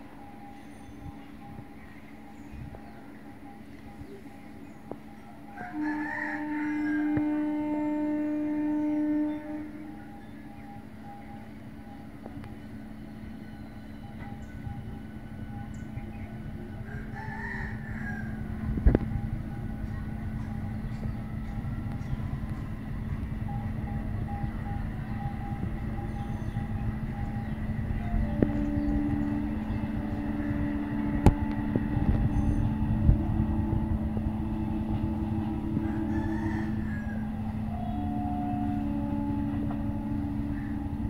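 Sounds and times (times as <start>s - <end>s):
train rumble: 0.0s - 41.0s
rooster crowing: 5.6s - 7.3s, 16.8s - 18.4s, 35.4s - 37.6s.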